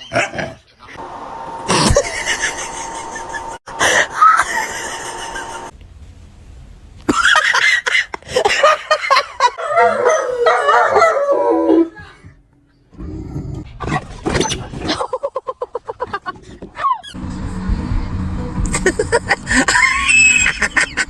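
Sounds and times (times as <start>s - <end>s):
short pulses: 1.0s - 5.7s
dog howling and yipping: 9.6s - 12.1s.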